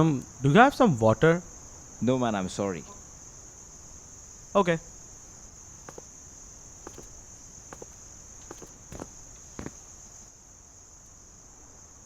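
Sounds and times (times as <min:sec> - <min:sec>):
crickets trilling: 0:00.0 - 0:12.0
soft steps or knocks: 0:05.9 - 0:10.0.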